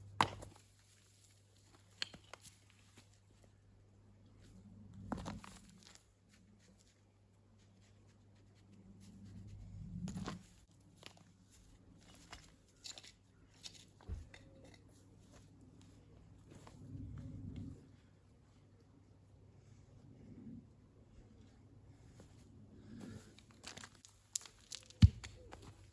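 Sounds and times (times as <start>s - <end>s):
low steady hum: 0.0s - 25.9s
stones knocking: 23.6s - 25.7s.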